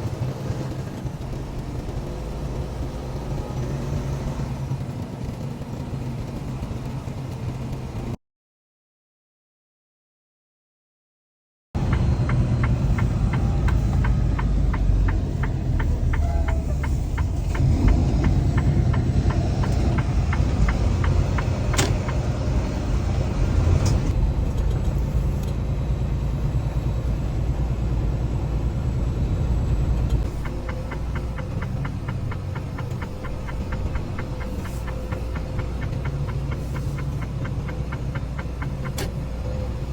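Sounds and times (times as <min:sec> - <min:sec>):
diesel engine rumbling: 0:00.0 - 0:08.2, 0:11.8 - 0:39.9
fine rapid ticking: 0:30.2 - 0:39.3.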